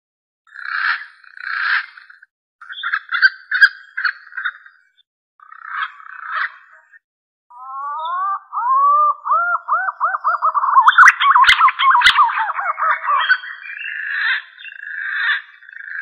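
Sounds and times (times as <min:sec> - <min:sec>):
pigeon whistling song: 0:07.6 - 0:14.4.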